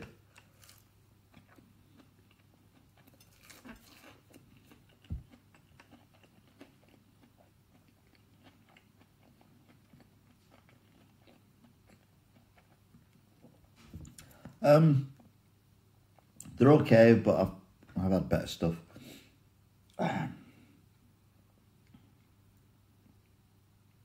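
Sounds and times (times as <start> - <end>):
chewing: 0.4 - 14.5.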